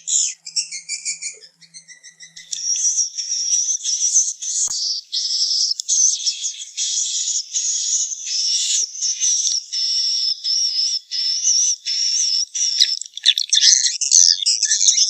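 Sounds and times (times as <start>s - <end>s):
swiftlet twittering chirps: 0.0s - 15.0s.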